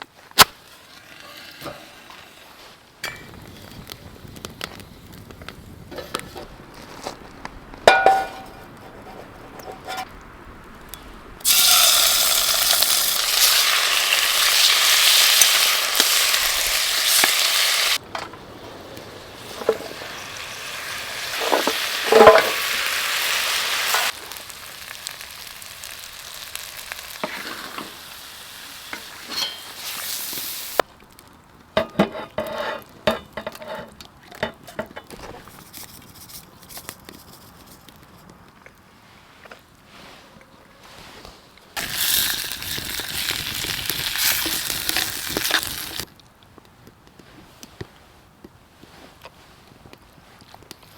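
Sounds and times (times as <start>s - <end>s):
chicken sizzling in a pan: 11.4s - 18.0s, 18.9s - 30.8s, 41.8s - 46.1s.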